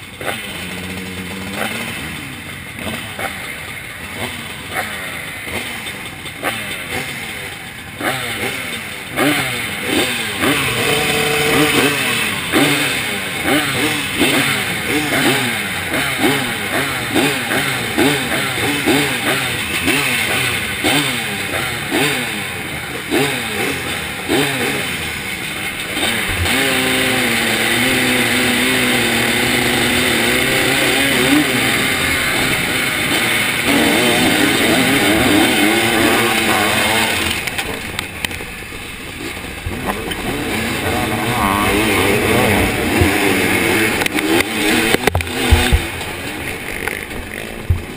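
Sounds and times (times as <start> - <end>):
two-stroke engine revving: 0.0 - 47.9.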